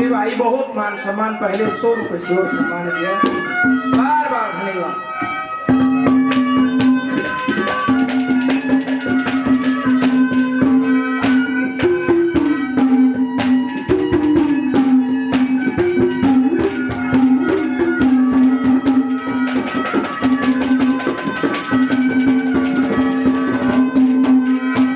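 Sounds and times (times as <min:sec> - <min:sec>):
fast hand drumming: 0:05.7 - 0:24.9.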